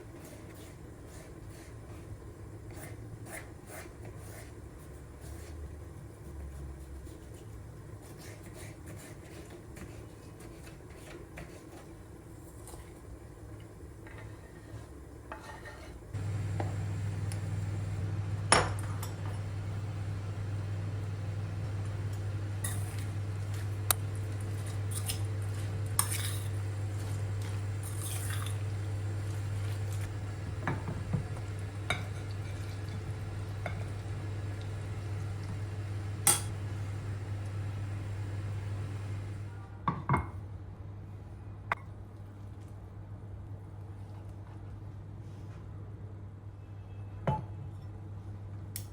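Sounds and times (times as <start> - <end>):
steady low hum: 16.1 - 39.7
dishes and cutlery clinking: 22.1 - 23.1.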